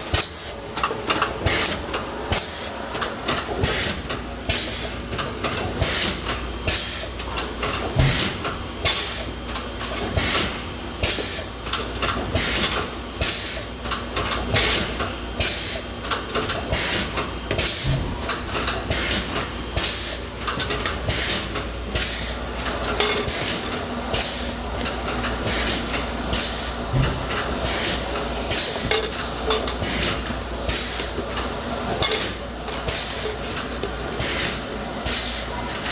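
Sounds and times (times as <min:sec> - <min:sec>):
shrink-wrapping machine humming: 0:00.0 - 0:35.9
clicks and clatter of containers: 0:08.9 - 0:35.9.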